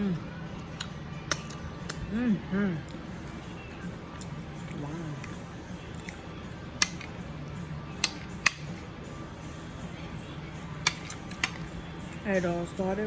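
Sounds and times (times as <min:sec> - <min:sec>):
quiet background music: 0:00.0 - 0:13.0
cutlery clicking on a plate: 0:00.7 - 0:02.0, 0:06.8 - 0:07.2, 0:08.0 - 0:08.8, 0:10.8 - 0:11.7.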